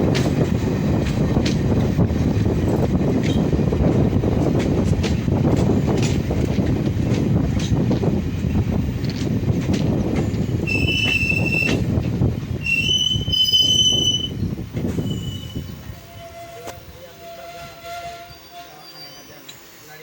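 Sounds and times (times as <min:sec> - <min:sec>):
train rumble: 0:00.0 - 0:20.0
train wheels squealing: 0:10.6 - 0:11.8, 0:12.6 - 0:20.0.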